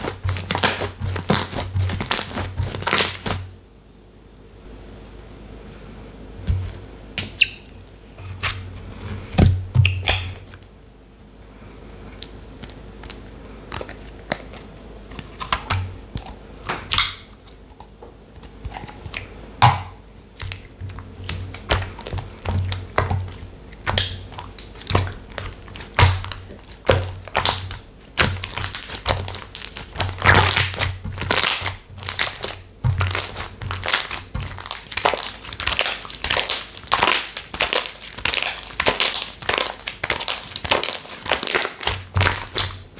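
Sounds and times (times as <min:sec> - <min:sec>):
slime crackling when squeezed: 0:00.0 - 0:03.4, 0:21.2 - 0:42.8.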